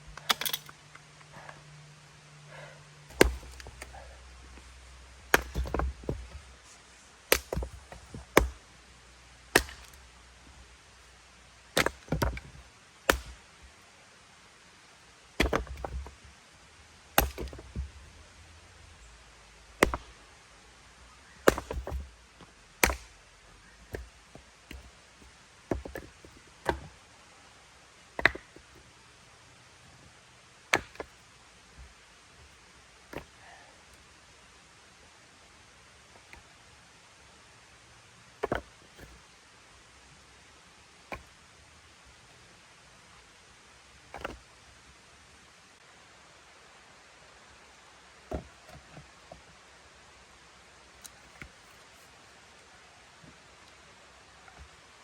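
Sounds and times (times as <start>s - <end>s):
axe chopping firewood: 0.2s - 0.7s, 3.1s - 6.5s, 7.3s - 8.6s, 9.5s - 10.1s, 11.7s - 13.4s, 15.4s - 16.2s, 17.1s - 18.0s, 19.8s - 20.2s, 21.2s - 22.1s, 22.8s - 25.0s, 25.7s - 26.9s, 28.2s - 28.8s, 30.7s - 31.2s, 33.0s - 33.4s, 38.4s - 39.2s, 41.0s - 41.4s, 44.0s - 44.4s.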